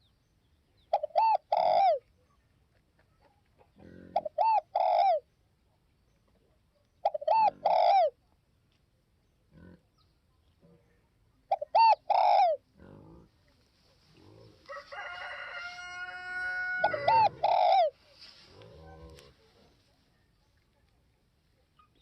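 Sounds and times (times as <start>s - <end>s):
dove cooing: 0.9s - 2.0s, 3.8s - 5.2s, 7.0s - 8.2s, 11.5s - 12.6s, 16.3s - 18.0s
drawn-out bird call: 15.2s - 17.9s.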